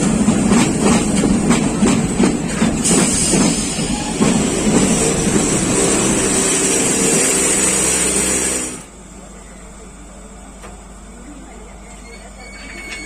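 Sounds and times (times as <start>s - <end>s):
train wheels rumbling on rail: 0.0s - 9.1s, 10.3s - 13.0s
rail-joint clacks: 11.9s - 13.0s.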